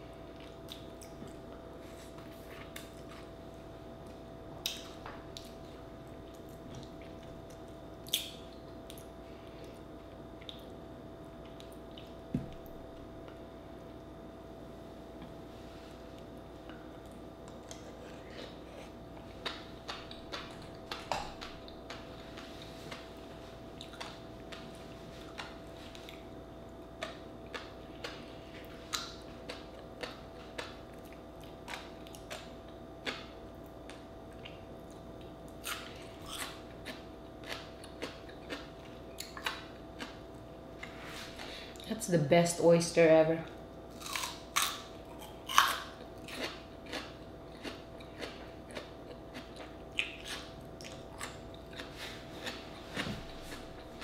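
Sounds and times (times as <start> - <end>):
faint steady hum: 0.0 - 54.0
wet chewing: 44.0 - 54.0.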